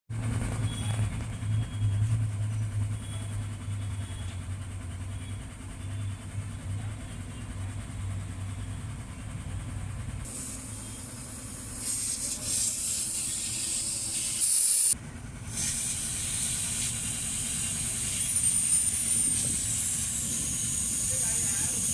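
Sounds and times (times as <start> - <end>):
low mechanical hum: 0.1 - 21.9
loud hissing jet: 10.3 - 21.9.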